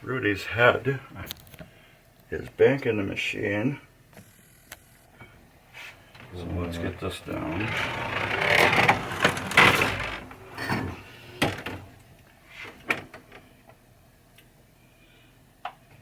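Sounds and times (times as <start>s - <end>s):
loud sliding scrape: 7.3s - 10.4s.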